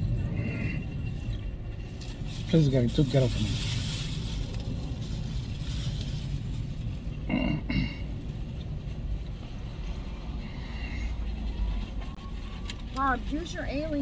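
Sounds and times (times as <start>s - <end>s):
car engine idling rumble: 0.0s - 14.0s
person clearing throat: 7.3s - 8.0s.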